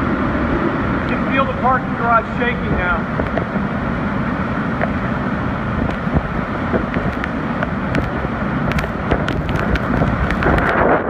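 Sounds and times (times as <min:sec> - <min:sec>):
hurricane wind buffeting microphone: 0:00.0 - 0:11.0
sharp clicks and ticks: 0:05.8 - 0:10.9.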